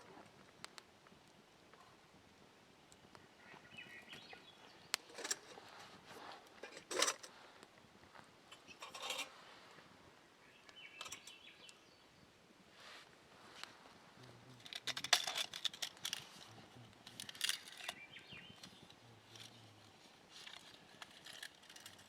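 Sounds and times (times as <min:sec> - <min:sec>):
faint bird chirps: 0:03.1 - 0:05.0, 0:10.4 - 0:12.3, 0:17.6 - 0:19.9
knocks and rustling handling: 0:14.5 - 0:18.0.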